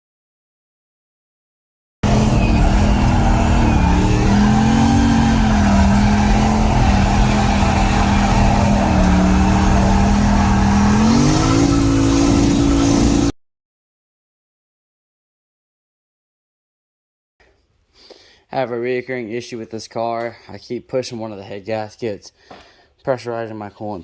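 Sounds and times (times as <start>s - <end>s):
car engine revving high: 2.0s - 13.3s.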